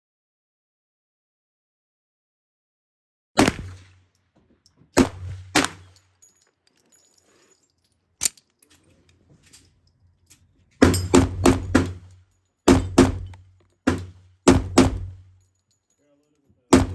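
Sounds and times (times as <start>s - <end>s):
pistol shots with echo: 3.4s - 4.0s, 5.0s - 6.0s, 10.8s - 12.1s, 12.7s - 15.3s.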